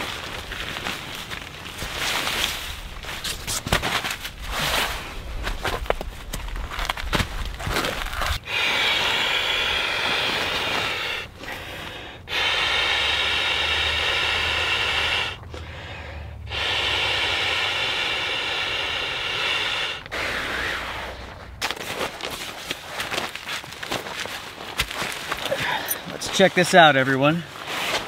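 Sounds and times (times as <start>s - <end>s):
person blowing into valve: 8.1s - 15.8s, 16.4s - 21.6s
person breathing in: 8.1s - 21.6s, 25.4s - 26.2s.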